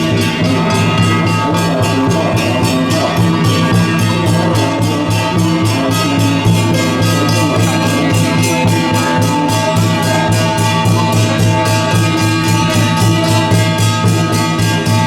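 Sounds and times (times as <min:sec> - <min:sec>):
cymbals: 0:00.0 - 0:15.0
drums beating fast rhythm: 0:00.0 - 0:15.0.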